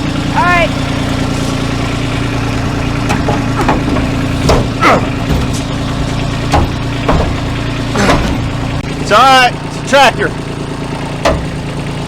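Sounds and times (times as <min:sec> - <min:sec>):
tractor engine idling: 0:00.0 - 0:12.0
sharp metal knocks: 0:02.9 - 0:08.8, 0:11.0 - 0:12.0.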